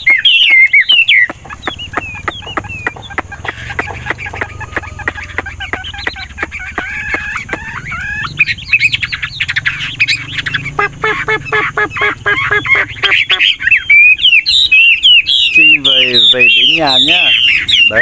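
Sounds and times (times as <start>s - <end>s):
bird singing whistled notes: 0.0s - 18.0s.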